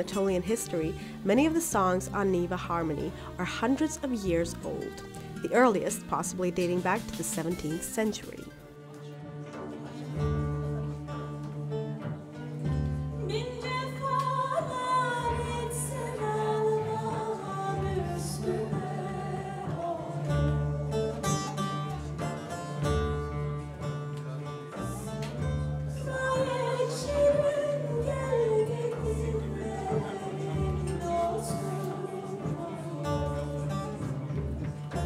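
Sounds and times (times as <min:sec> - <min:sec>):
woman singing: 0:00.0 - 0:08.5, 0:13.2 - 0:21.0, 0:25.9 - 0:34.5
plucked acoustic guitar: 0:00.0 - 0:35.0.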